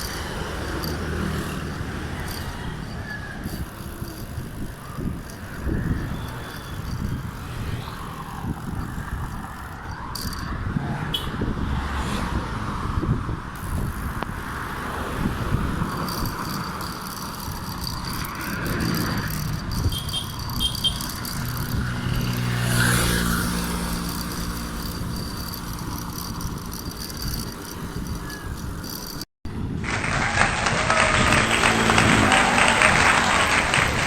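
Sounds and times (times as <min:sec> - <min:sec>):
wind rushing over microphone: 0:00.0 - 0:34.0
motor vehicle engine passing: 0:14.5 - 0:28.1, 0:29.6 - 0:34.0.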